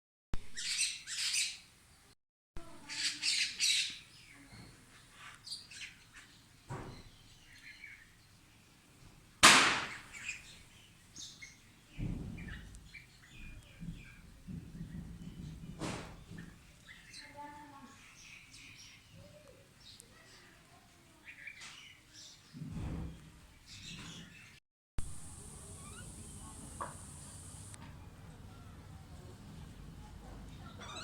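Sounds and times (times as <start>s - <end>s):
loud sharp sound: 9.4s - 10.1s
birds chirping: 23.7s - 27.8s.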